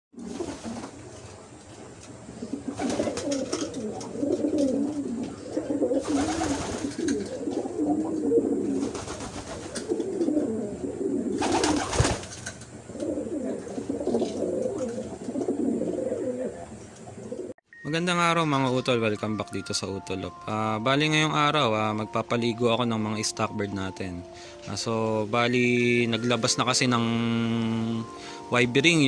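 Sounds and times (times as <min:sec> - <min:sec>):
pigeons cooing: 0:00.2 - 0:17.6.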